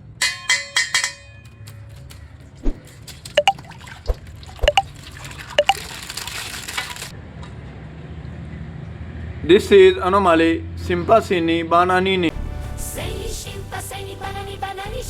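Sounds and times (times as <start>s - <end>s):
water dripping: 2.7s - 7.1s.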